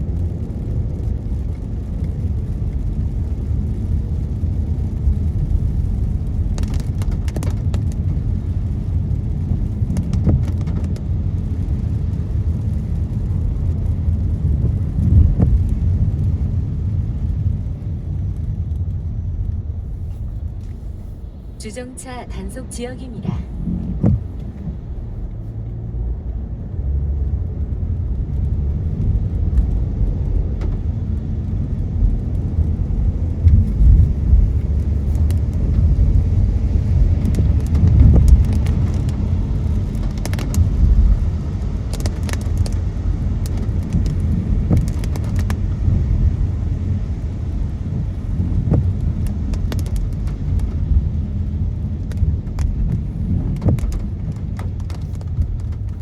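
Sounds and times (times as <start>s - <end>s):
tyres and engine rumble: 0.1s - 56.0s
raindrops ticking on windows: 28.4s - 56.0s.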